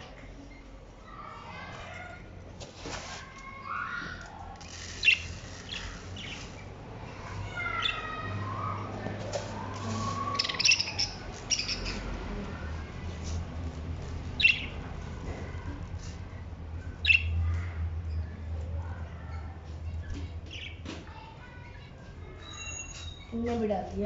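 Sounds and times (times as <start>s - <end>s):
finches chirping and calling: 4.8s - 9.0s, 9.7s - 12.2s, 14.4s - 14.8s, 16.9s - 17.4s.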